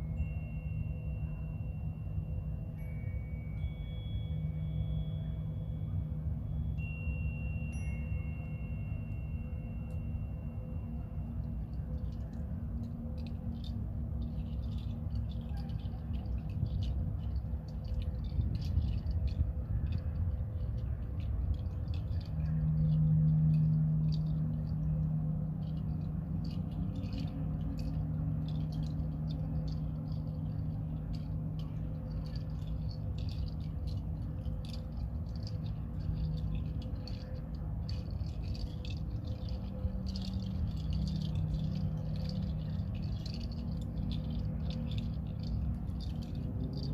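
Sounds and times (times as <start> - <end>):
hand rattle shaken softly: 0.0 - 46.9
low steady drone: 0.0 - 46.9.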